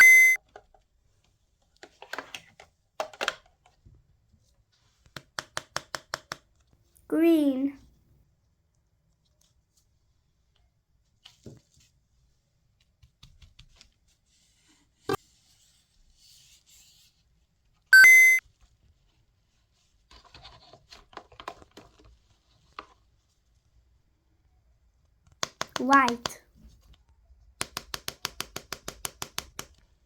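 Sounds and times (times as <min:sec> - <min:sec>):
buzzy electronic beep: 0:00.0 - 0:00.4, 0:18.0 - 0:18.4.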